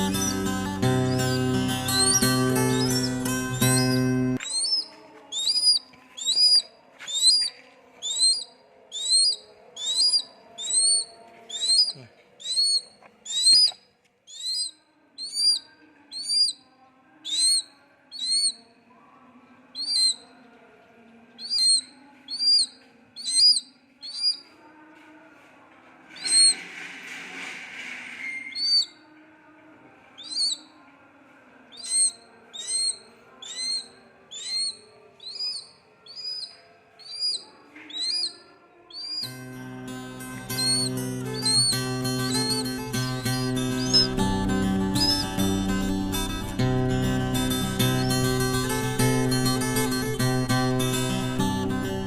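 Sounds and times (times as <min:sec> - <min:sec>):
bird calling high sharp notes: 0:00.0 - 0:07.5, 0:09.0 - 0:15.6, 0:31.8 - 0:38.3, 0:38.9 - 0:52.0.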